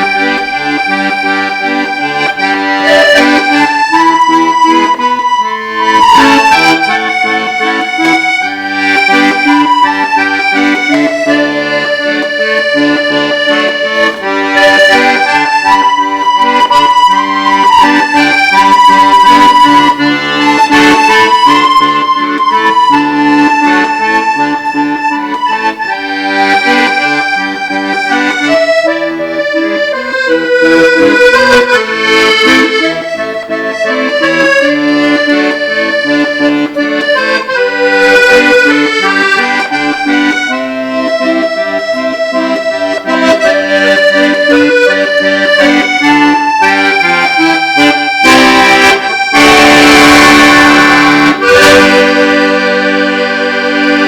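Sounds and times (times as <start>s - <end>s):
accordion playing slow ballad: 0.0s - 54.0s.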